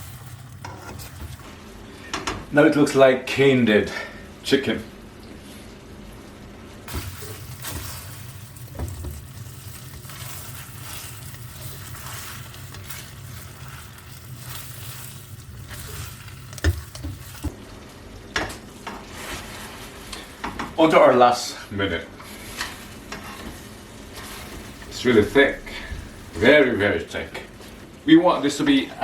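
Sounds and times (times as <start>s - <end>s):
low steady hum: 0.0s - 29.0s
sauce sizzling in a pan: 6.9s - 18.1s.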